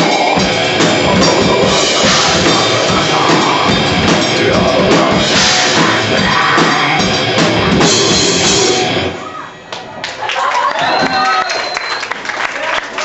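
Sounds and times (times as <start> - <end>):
death metal band playing live: 0.0 - 9.2.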